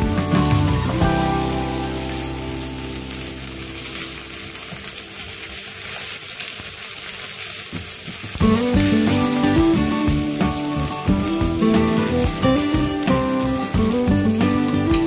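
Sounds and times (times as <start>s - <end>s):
background music: 0.0s - 4.3s, 8.4s - 15.0s
vegetables sizzling in oil: 0.0s - 15.0s.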